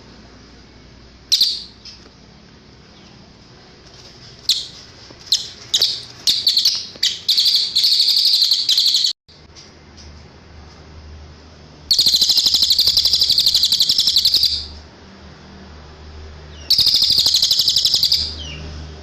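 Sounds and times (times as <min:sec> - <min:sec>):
songbird chirping and trilling: 0:01.3 - 0:02.1, 0:04.5 - 0:09.2, 0:11.9 - 0:14.8, 0:16.4 - 0:18.8.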